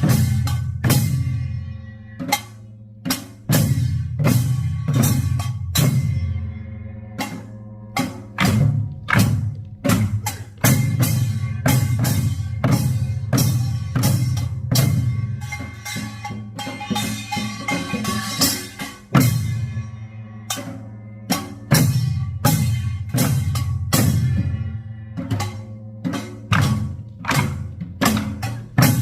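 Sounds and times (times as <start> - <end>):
barrel drums beaten: 0.0 - 1.5, 7.2 - 19.6, 25.3 - 29.0.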